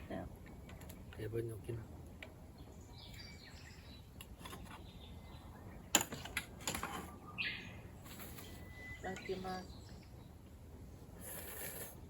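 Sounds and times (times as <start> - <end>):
outdoor background noise: 0.0 - 12.0
bird chirping: 2.4 - 6.4, 7.0 - 10.6.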